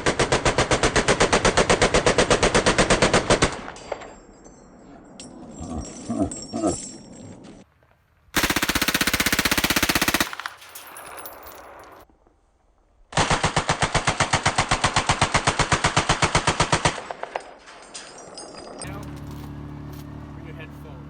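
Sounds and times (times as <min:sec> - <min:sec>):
machine gun firing bursts: 0:00.0 - 0:03.7, 0:08.4 - 0:10.7, 0:13.2 - 0:17.5.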